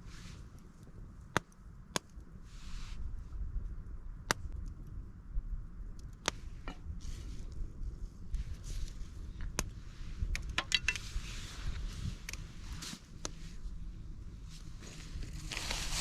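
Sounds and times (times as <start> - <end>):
campfire crackling and popping: 0.4 - 2.4, 3.7 - 5.1, 5.7 - 13.7.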